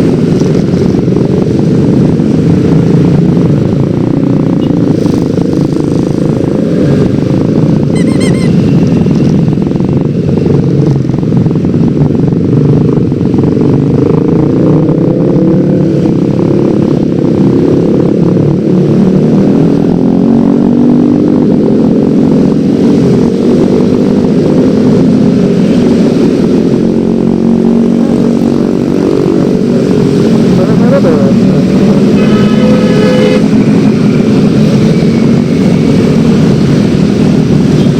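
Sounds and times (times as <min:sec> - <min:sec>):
wind noise on microphone: 0:00.0 - 0:30.6
high beep: 0:07.9 - 0:09.2.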